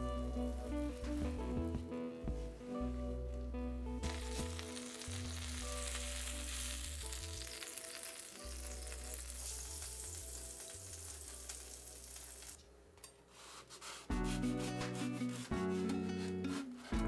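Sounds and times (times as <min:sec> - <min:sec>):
food sizzling in oil: 0:04.1 - 0:12.6.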